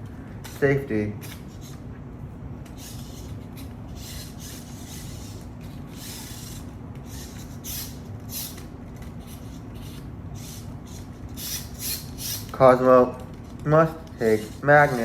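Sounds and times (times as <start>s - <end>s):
steady low hum: 0.0s - 15.0s
toys rubbing and scraping: 0.4s - 1.8s, 2.6s - 15.0s.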